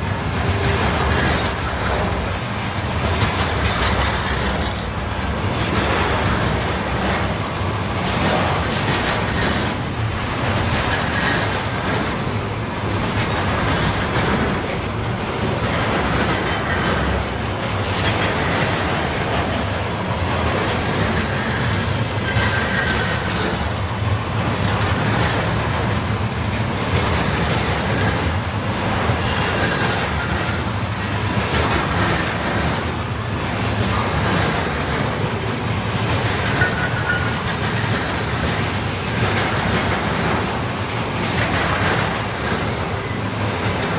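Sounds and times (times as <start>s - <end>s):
train wheels clattering on rails: 0.0s - 43.9s
wheel squeals: 20.4s - 23.6s, 33.4s - 43.9s.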